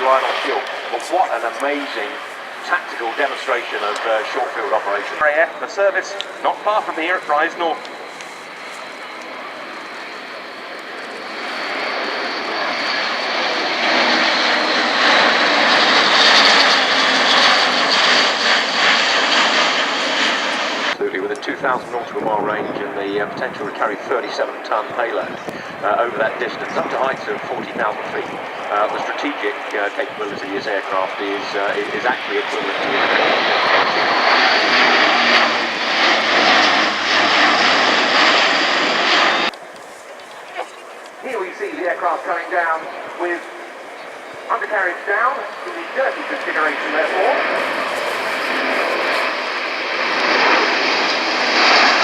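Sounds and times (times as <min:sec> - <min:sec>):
turboprop aircraft passing: 0:00.0 - 0:52.0.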